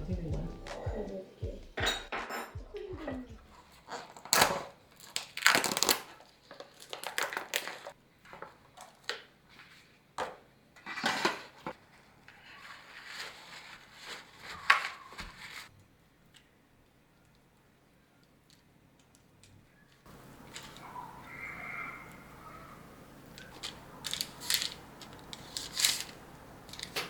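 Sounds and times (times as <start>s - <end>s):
dishes scraping and knocking: 1.8s - 2.6s.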